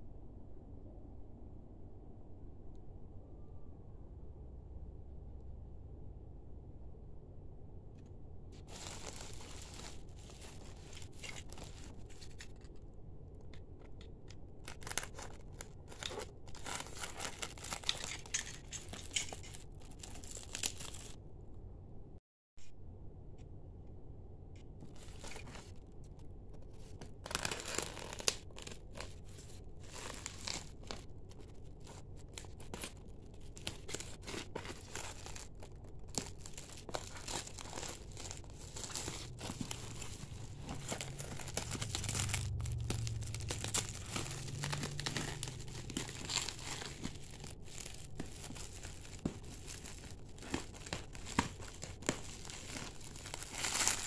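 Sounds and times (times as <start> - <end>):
plastic wrap crinkling and tearing: 8.6 - 12.8, 13.5 - 21.2, 24.8 - 54.0
scissors cutting plastic: 8.7 - 12.8, 13.4 - 21.2, 26.7 - 54.0.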